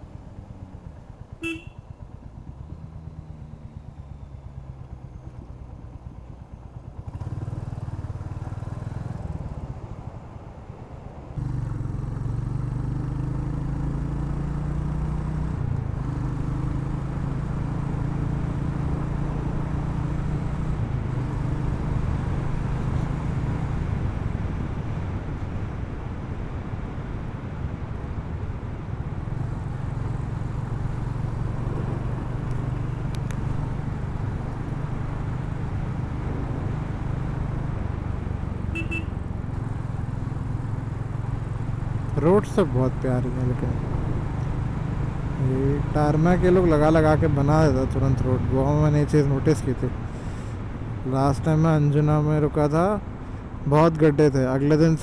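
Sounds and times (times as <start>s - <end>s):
motorcycle engine running: 0.0s - 9.5s, 28.2s - 48.8s
horn toot: 1.4s - 1.8s, 38.7s - 39.1s.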